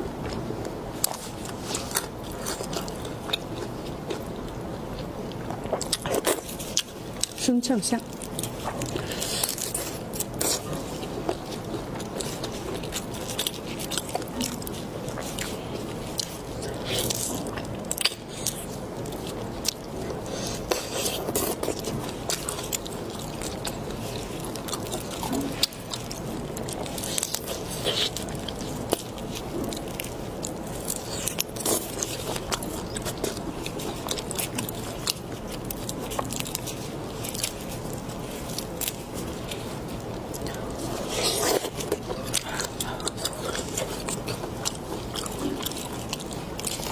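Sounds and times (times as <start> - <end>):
chewing shrimp: 0.2 - 46.9.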